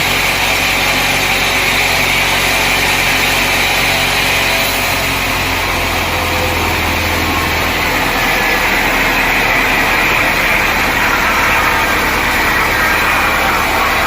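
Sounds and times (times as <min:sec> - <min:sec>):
low hum: 0:00.0 - 0:14.0
sawmill machinery running: 0:00.0 - 0:14.0.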